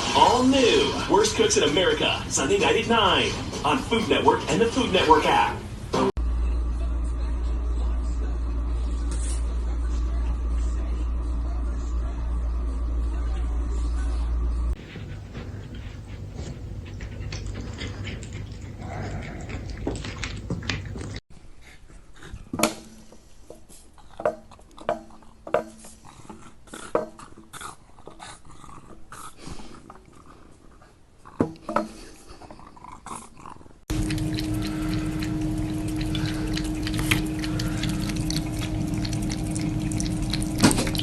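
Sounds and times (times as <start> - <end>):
dog making noises: 14.8 - 22.6, 32.1 - 41.0
steady hum: 33.9 - 41.0.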